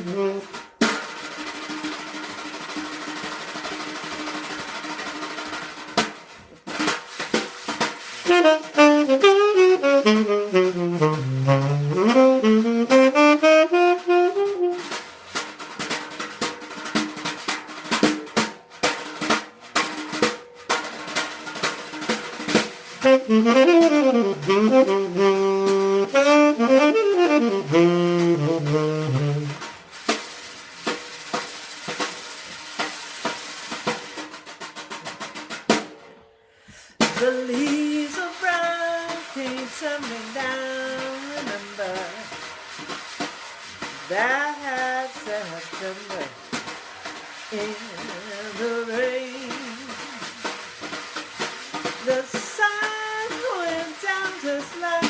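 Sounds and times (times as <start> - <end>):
saxophone solo: 0.0 - 0.6, 8.2 - 15.2, 23.0 - 29.8
drum kit: 0.0 - 55.0.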